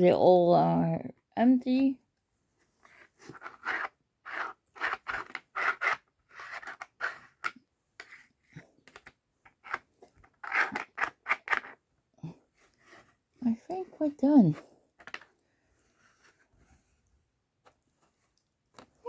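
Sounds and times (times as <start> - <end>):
dog scratching at puzzle toy: 2.9 - 11.8.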